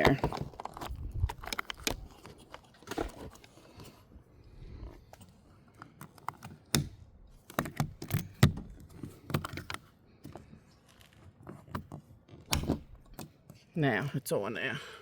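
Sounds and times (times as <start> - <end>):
metal carabiner clicking: 0.0 - 3.5, 4.8 - 13.5
handling bumps: 0.0 - 4.2.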